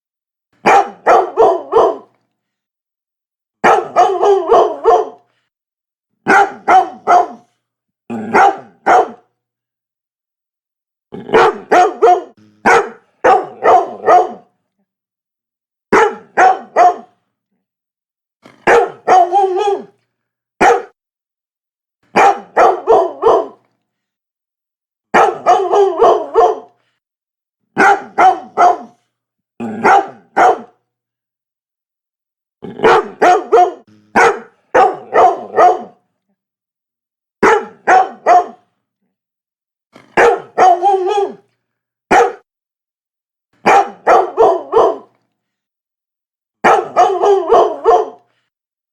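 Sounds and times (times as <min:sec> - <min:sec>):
dog barking: 0:00.6 - 0:02.2, 0:03.6 - 0:05.3, 0:06.3 - 0:07.5, 0:08.1 - 0:09.3, 0:11.2 - 0:14.5, 0:15.9 - 0:17.2, 0:18.5 - 0:20.0, 0:20.6 - 0:21.0, 0:22.1 - 0:23.6, 0:25.1 - 0:26.8, 0:27.8 - 0:29.0, 0:29.7 - 0:30.8, 0:32.8 - 0:36.0, 0:37.4 - 0:38.7, 0:40.0 - 0:41.4, 0:42.1 - 0:42.5, 0:43.6 - 0:45.2, 0:46.6 - 0:48.3.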